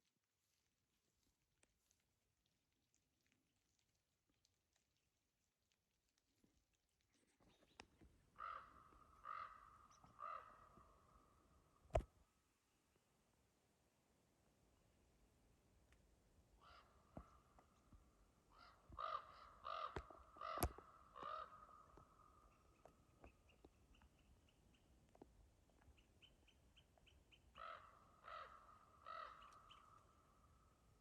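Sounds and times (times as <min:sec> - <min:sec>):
crow cawing: 0:08.4 - 0:11.2, 0:16.6 - 0:16.9, 0:18.5 - 0:22.4, 0:27.6 - 0:29.9.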